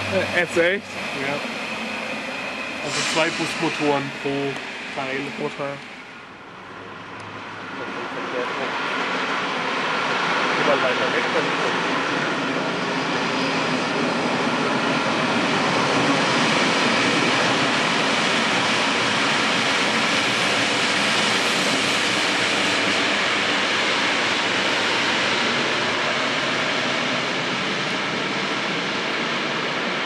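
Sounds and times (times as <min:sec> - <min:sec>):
trains rolling roar: 0:00.0 - 0:30.0.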